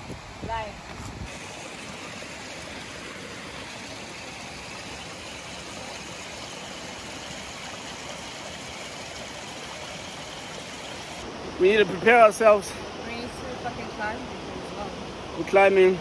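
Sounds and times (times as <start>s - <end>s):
waterfall rushing over rocks: 1.3s - 13.0s.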